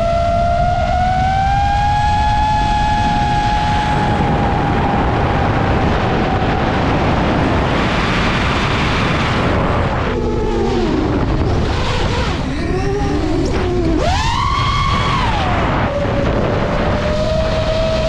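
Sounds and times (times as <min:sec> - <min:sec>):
quadcopter motors and propellers: 0:00.0 - 0:18.0
rushing noise: 0:00.0 - 0:18.0
steady motor whine: 0:00.0 - 0:18.0.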